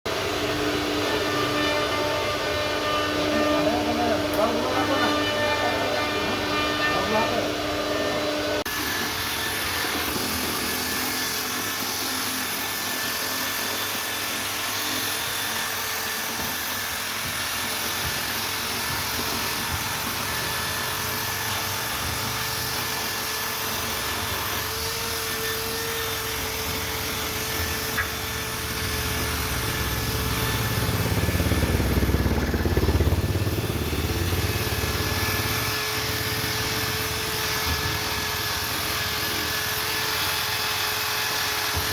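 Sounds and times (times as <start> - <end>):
router spindle cutting wood: 0.1 - 41.9
low rumble: 29.7 - 35.3.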